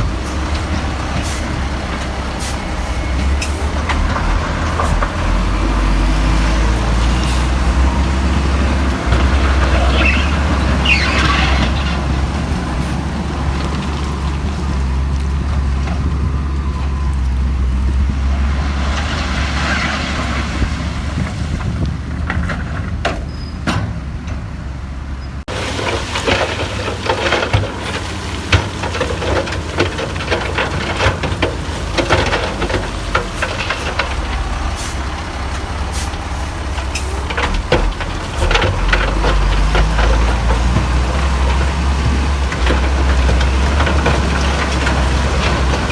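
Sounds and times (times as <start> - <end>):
diesel engine drone: 0.0 - 45.9
metallic clanks and rattles: 25.5 - 45.9.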